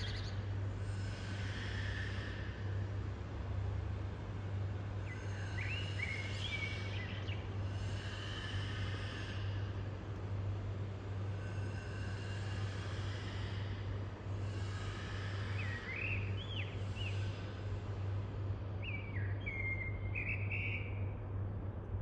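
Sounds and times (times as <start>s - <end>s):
blackbird singing: 0.0s - 0.4s, 5.1s - 7.4s, 15.6s - 17.2s, 18.8s - 21.1s
background hum and hiss: 0.0s - 22.0s.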